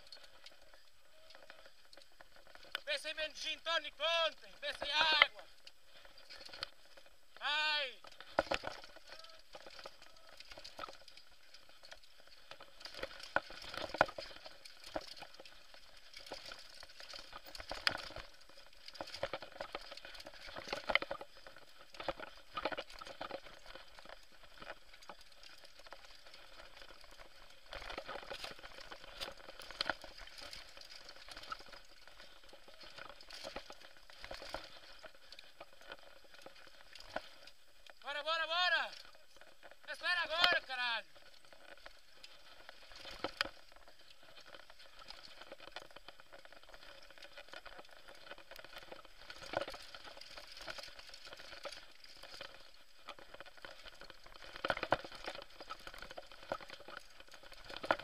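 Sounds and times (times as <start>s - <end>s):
bike rattling: 0.0s - 58.0s
tyres crunching over loose ground: 0.0s - 58.0s.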